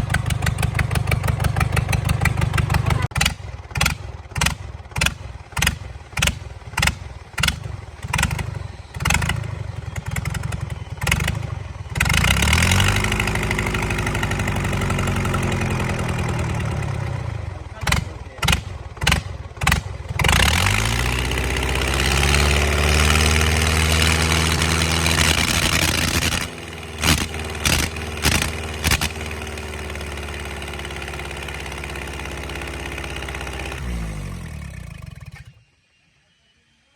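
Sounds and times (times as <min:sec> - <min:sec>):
engine starting and idling: 0:00.0 - 0:36.2
sharp clicks: 0:24.6 - 0:29.4.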